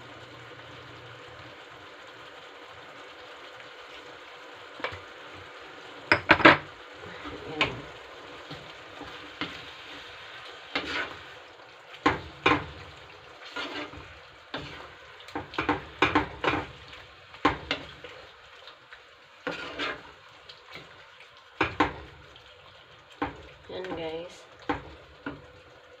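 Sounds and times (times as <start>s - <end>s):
utensil scraping a pan: 10.7s - 11.4s, 13.4s - 14.9s, 19.4s - 20.1s.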